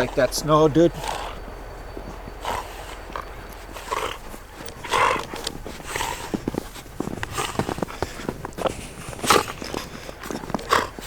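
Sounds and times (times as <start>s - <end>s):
dogs huffing: 0.0s - 11.0s
dogs scuffling in snow: 0.0s - 11.0s.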